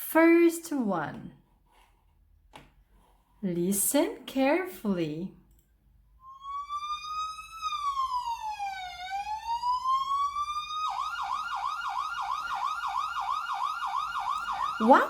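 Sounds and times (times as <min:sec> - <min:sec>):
ambulance siren: 0:06.2 - 0:15.0.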